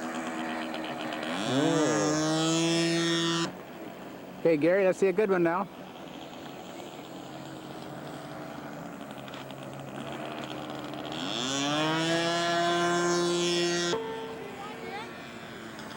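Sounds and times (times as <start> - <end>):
model airplane engine revving: 0.0 - 15.9.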